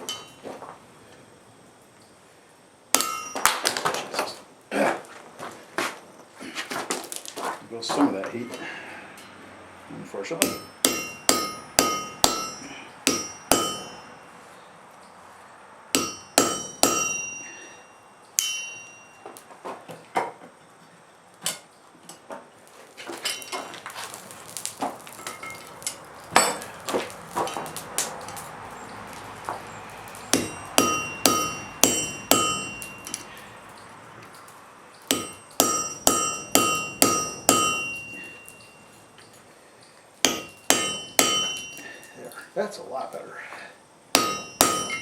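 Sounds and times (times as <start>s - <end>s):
anvil ringing: 2.9s - 3.7s, 10.4s - 14.3s, 16.0s - 19.4s, 30.2s - 33.5s, 35.1s - 39.0s, 40.2s - 42.3s, 44.1s - 45.0s
hammer striking iron on anvil: 2.9s - 3.7s, 10.4s - 14.2s, 15.9s - 19.4s, 25.2s - 28.4s, 30.3s - 33.4s, 35.1s - 38.8s, 40.2s - 42.2s, 44.1s - 45.0s.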